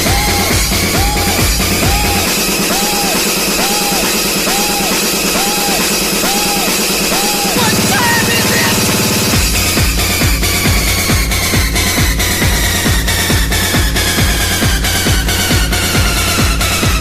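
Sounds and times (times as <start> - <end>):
buzzing bass line: 0.0 - 17.0
electronic dance music: 0.0 - 17.0
repeating synth phrase: 7.4 - 10.2.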